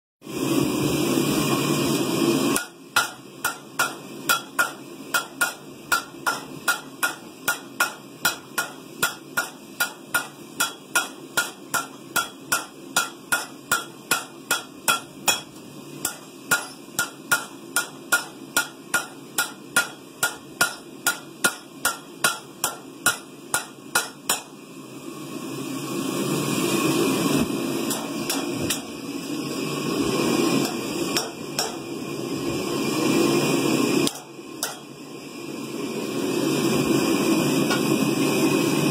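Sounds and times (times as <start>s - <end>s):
hammers striking an anvil: 2.6s - 24.6s, 27.9s - 29.0s, 30.6s - 31.9s, 34.0s - 34.9s, 37.7s - 37.9s.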